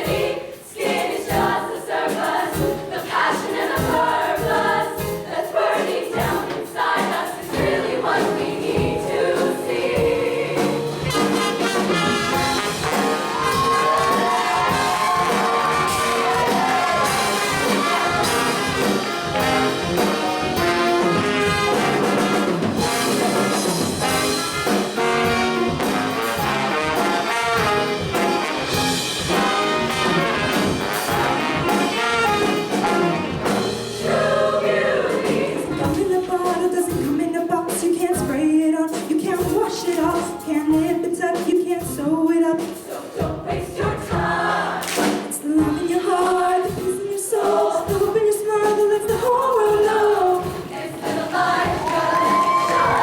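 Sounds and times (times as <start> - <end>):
brass band playing over a beat: 7.6 - 34.4, 50.4 - 53.0.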